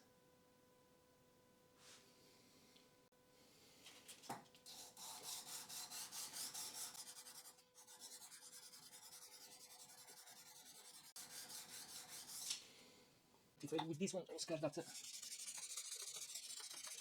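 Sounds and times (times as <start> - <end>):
metal rubbing on abrasive: 5.0 - 12.6, 14.4 - 17.0.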